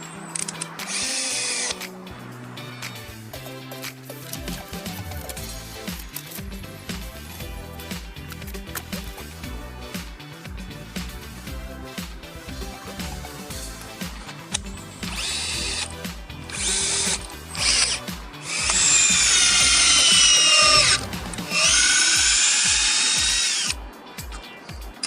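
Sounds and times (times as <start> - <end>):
background music with beat: 0.0 - 25.0
hammer drill boring into wall: 15.1 - 15.9, 16.5 - 23.8.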